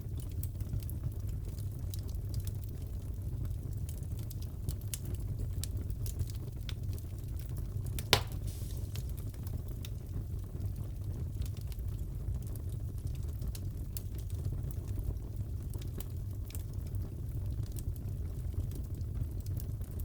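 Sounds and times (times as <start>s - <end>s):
wood fire crackling: 0.0s - 20.0s
loud pop from fire: 8.0s - 9.5s.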